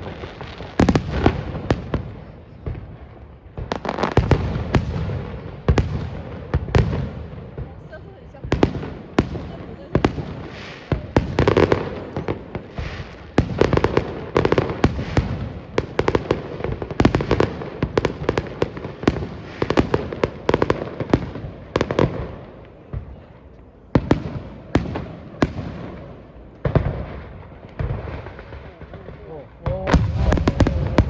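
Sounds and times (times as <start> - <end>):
fireworks bangs and booms: 0.0 - 31.0.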